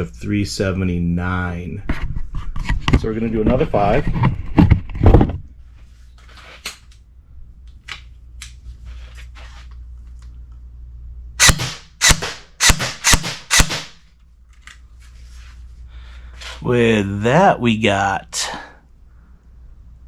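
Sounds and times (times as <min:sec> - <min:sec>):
airsoft gun shots: 0:11.4 - 0:14.0.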